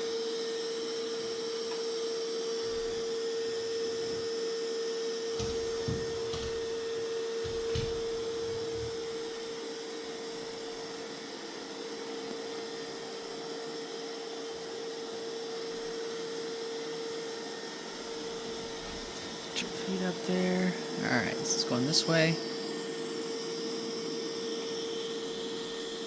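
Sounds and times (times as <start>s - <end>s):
robot vacuum whining: 0.0s - 11.7s
faint knocks: 5.4s - 9.0s.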